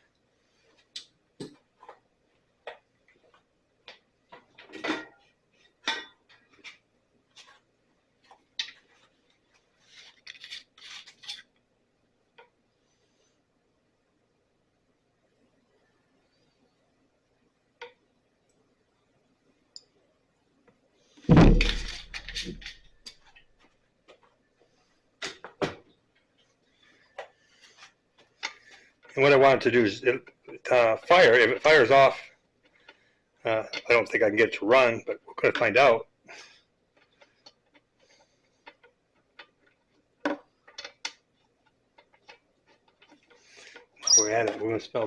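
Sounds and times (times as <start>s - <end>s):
sharp knock: 21.3s - 22.0s
heavy thump: 21.3s - 22.1s.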